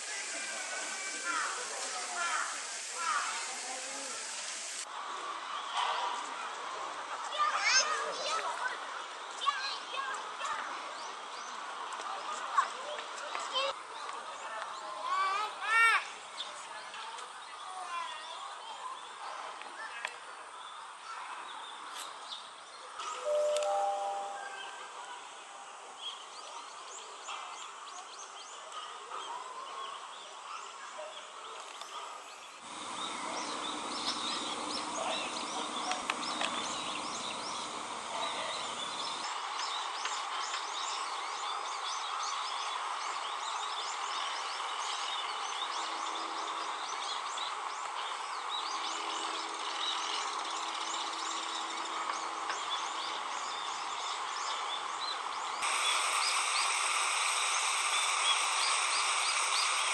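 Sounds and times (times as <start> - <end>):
small birds chirping: 31.5 - 59.9
background hum: 32.6 - 39.4.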